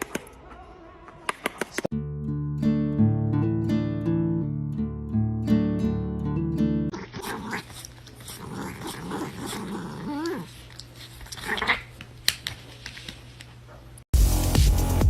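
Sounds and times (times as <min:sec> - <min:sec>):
dog growling: 0:06.9 - 0:11.9.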